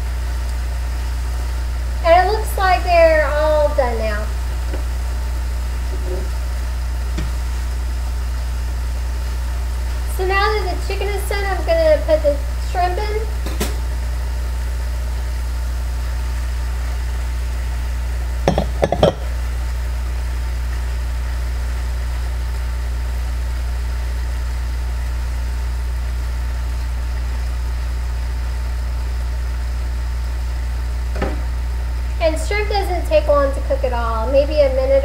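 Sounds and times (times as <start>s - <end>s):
utensil knocking in a pan: 18.5s - 19.4s
steady low hum: 18.5s - 19.6s.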